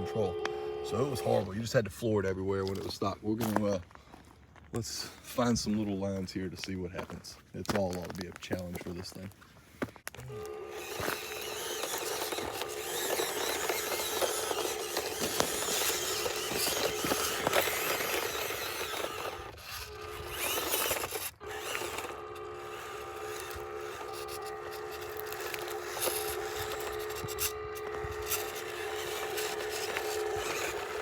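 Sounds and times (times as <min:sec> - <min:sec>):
small electric motor whining: 0:00.0 - 0:01.6, 0:10.1 - 0:31.0
tyres scrabbling over rocks: 0:05.6 - 0:31.0.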